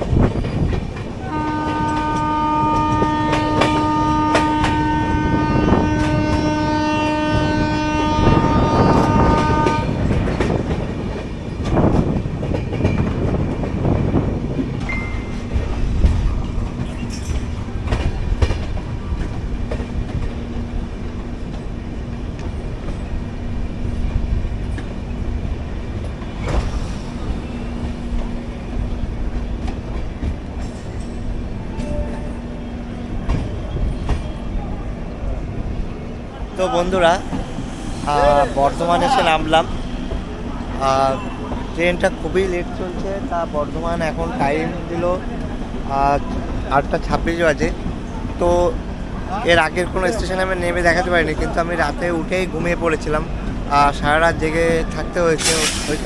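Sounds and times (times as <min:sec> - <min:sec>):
train running noise: 0:00.0 - 0:56.0
train horn blast: 0:01.2 - 0:10.6.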